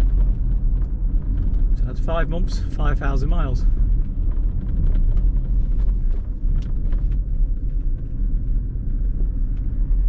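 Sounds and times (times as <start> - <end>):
road and tyre noise: 0.0 - 10.0.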